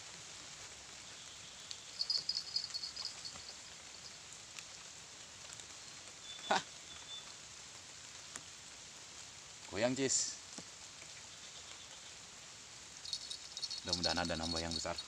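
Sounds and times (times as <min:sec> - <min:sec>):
rain falling: 0:00.0 - 0:15.0
high chirps: 0:02.0 - 0:03.7, 0:13.0 - 0:15.0.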